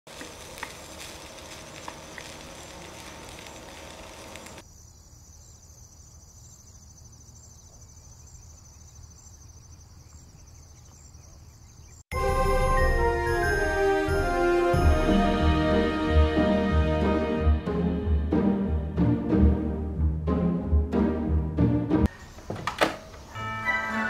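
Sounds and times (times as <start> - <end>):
rice sizzling in a pan: 0.1 - 4.6.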